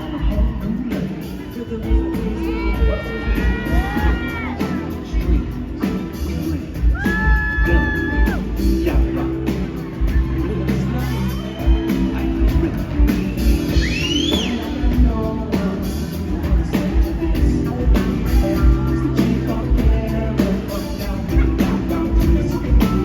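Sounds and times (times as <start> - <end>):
person singing: 0.0 - 23.0
rock band playing: 0.0 - 23.0.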